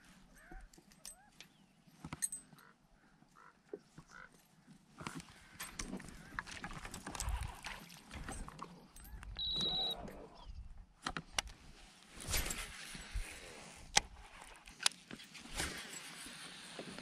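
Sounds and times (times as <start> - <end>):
fishing gear clicks and knocks: 0.3 - 2.7, 3.4 - 10.0, 11.0 - 17.0.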